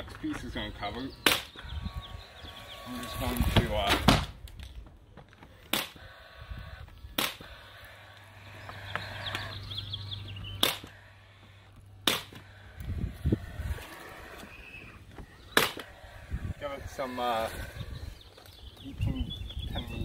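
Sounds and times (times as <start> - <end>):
nail gun shots into wood: 1.2 - 1.5, 3.9 - 4.4, 5.6 - 6.0, 7.2 - 7.5, 10.6 - 10.9, 12.0 - 12.4, 15.6 - 15.9.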